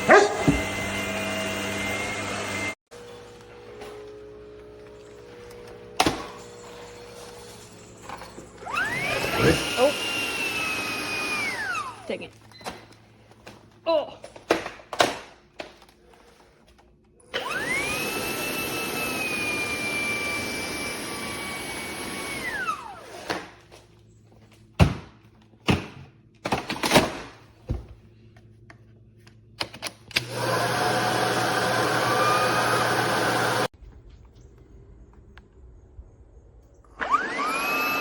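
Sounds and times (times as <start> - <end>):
vacuum cleaner motor whining: 0.0 - 13.0, 17.2 - 23.6, 30.1 - 33.8, 36.9 - 38.0.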